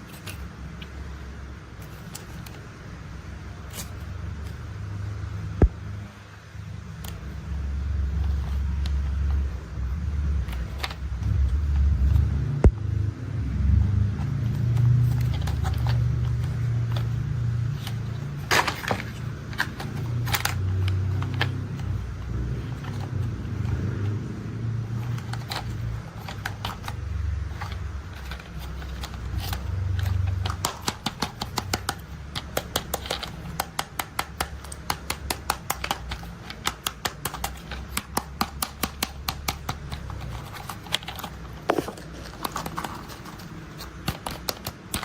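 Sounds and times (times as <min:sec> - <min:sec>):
toy vehicles clicking and clacking: 0:24.9 - 0:45.0.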